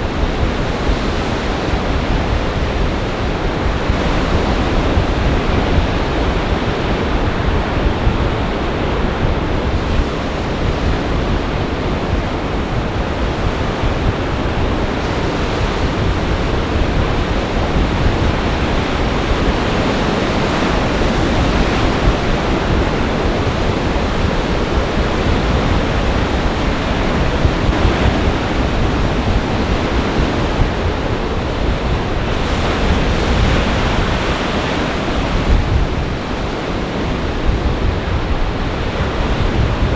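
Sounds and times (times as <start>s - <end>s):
storm waves crashing on shore: 0.0s - 39.9s
wind buffeting microphone: 0.0s - 39.9s.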